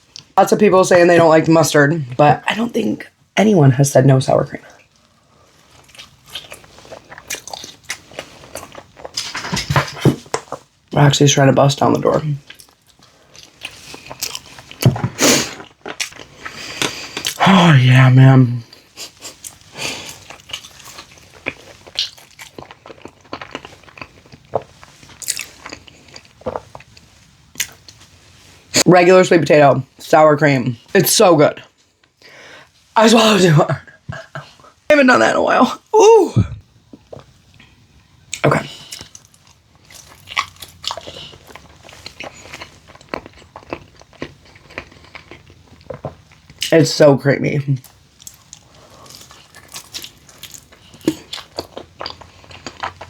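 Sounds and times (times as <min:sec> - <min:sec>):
crunchy snack chewing: 0:05.8 - 0:09.9, 0:12.5 - 0:17.4, 0:19.0 - 0:28.0, 0:38.8 - 0:46.7, 0:47.8 - 0:53.0
crunchy snack biting and chewing: 0:19.2 - 0:27.0.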